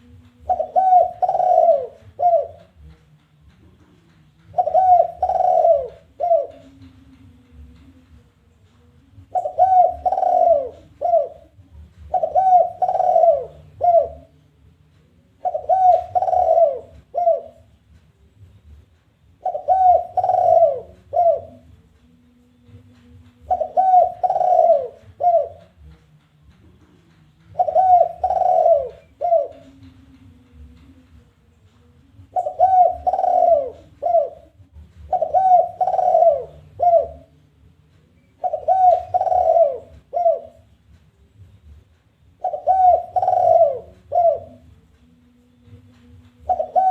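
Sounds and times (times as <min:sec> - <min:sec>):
dove cooing: 0:00.0 - 0:02.9, 0:04.5 - 0:08.0, 0:09.2 - 0:14.4, 0:15.4 - 0:17.8, 0:19.4 - 0:21.8, 0:23.4 - 0:25.9, 0:27.5 - 0:31.0, 0:32.2 - 0:37.4, 0:38.2 - 0:40.8, 0:42.4 - 0:44.8, 0:45.6 - 0:46.9.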